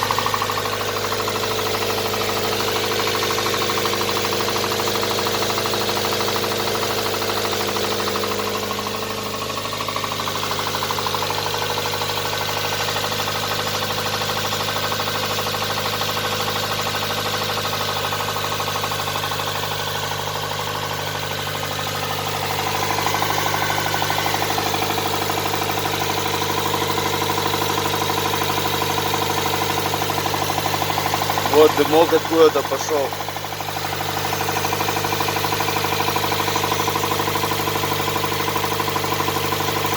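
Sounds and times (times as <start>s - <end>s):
engine running: 0.0s - 13.3s, 18.9s - 39.9s
rapid engine knock: 0.0s - 39.9s.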